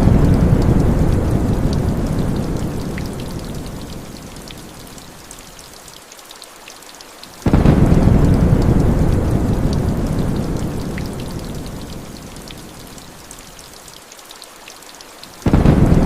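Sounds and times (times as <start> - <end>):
thunder rumbling: 0.0 - 3.5, 7.5 - 12.0, 15.5 - 16.0
rain drop ticks: 0.0 - 16.0
steady rain: 0.0 - 16.0.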